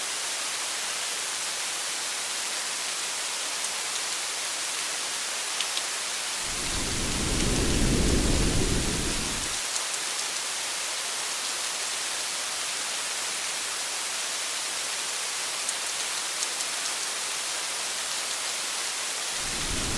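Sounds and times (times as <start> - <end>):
rain hiss: 5.6 - 10.2, 18.0 - 19.9
thunder rumble: 6.4 - 9.6, 19.4 - 19.9.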